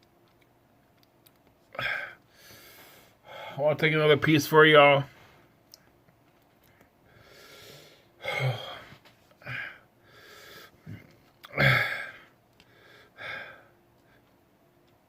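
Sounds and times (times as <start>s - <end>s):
man breathing hard: 1.8s - 3.6s, 7.0s - 14.3s
gasping groans: 8.2s - 13.6s.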